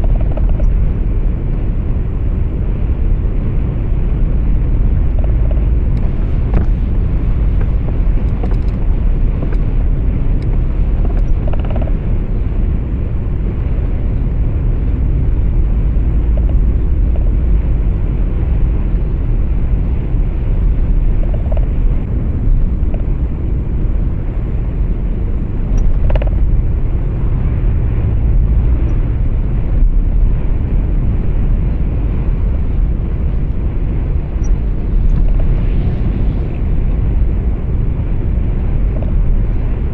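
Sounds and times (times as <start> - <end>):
road and engine rumble: 0.0 - 39.9.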